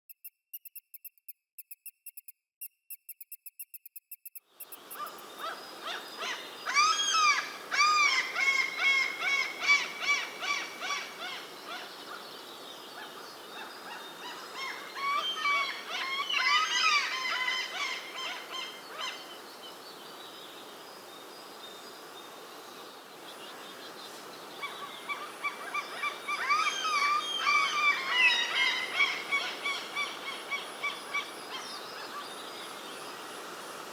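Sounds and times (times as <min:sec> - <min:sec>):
high thin bird chirps: 0:00.0 - 0:05.6
outdoor background: 0:00.0 - 0:33.9.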